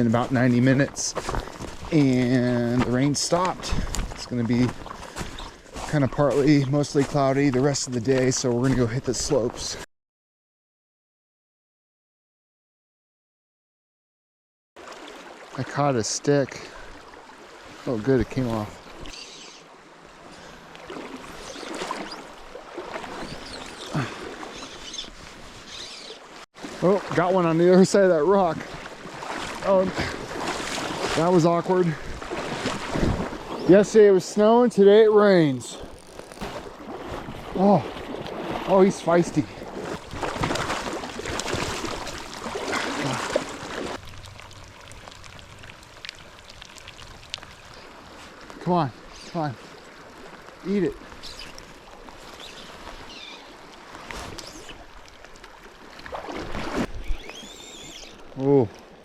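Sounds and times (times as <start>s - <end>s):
river water flowing and splashing: 0.0s - 9.8s, 14.8s - 59.0s
stream rushing: 14.8s - 34.2s, 34.8s - 59.0s.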